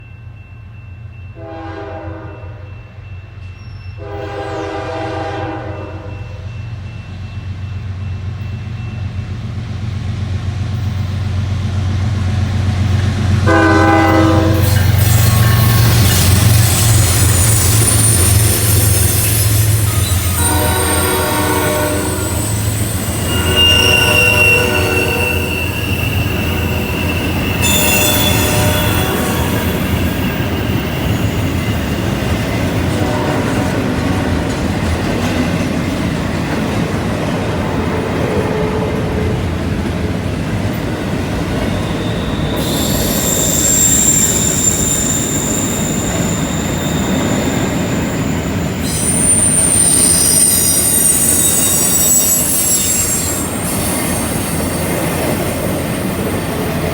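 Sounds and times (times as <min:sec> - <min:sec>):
diesel locomotive hum: 0:00.0 - 0:56.9
locomotive horn: 0:01.4 - 0:02.7, 0:04.0 - 0:06.4, 0:13.4 - 0:16.2, 0:19.6 - 0:30.3, 0:32.8 - 0:34.6
wheel flanges squealing on rail: 0:01.4 - 0:09.9, 0:10.7 - 0:56.9
train cars rolling: 0:03.4 - 0:56.9.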